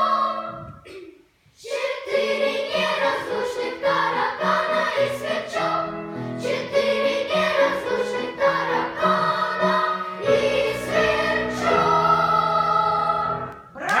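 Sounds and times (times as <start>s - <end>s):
children's choir singing: 0.0s - 1.0s, 1.6s - 13.7s.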